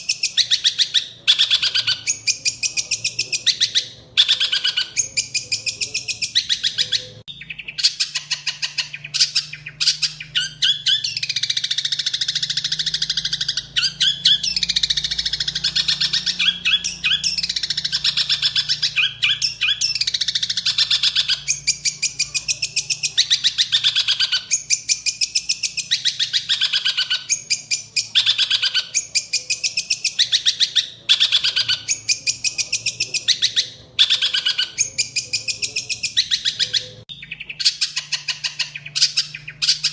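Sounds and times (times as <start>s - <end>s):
bird rapid chattering song: 0.0s - 39.9s.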